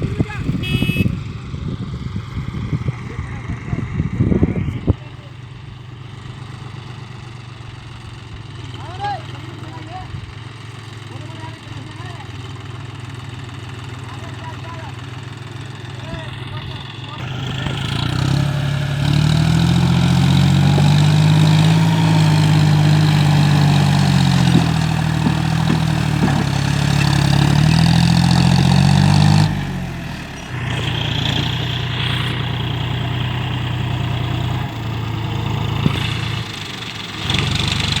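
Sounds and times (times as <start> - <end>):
tractor engine straining: 0.0 - 38.0.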